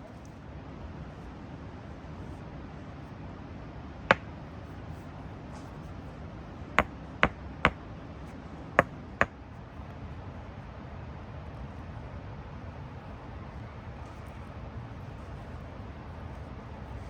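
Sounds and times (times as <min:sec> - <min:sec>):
sharp knocks: 0:06.8 - 0:07.8.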